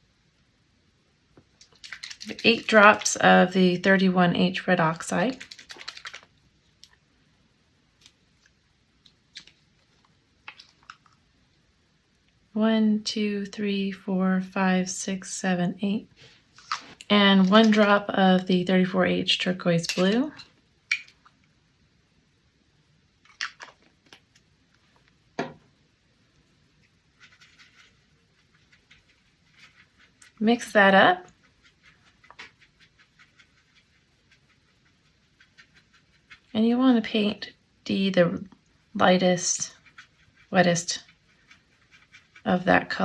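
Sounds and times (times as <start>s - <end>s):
scratchy rustle: 26.5s - 36.6s, 39.1s - 43.0s.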